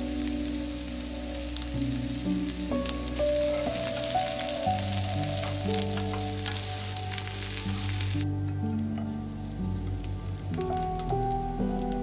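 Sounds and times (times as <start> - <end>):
background music with held notes: 0.0 - 12.0
food sizzling in oil: 0.1 - 8.2.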